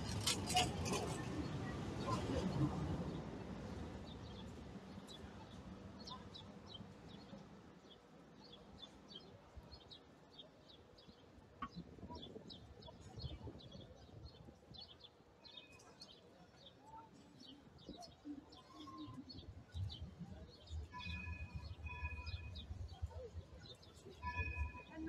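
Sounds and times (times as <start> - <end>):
crowd murmur: 0.0 - 6.6.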